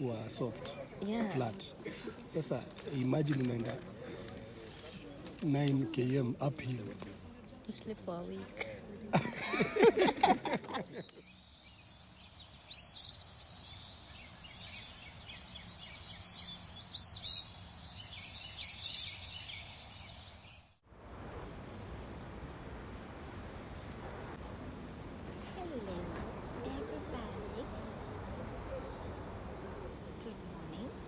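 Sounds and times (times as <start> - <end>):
steady background noise: 0.0 - 11.2, 21.0 - 31.0.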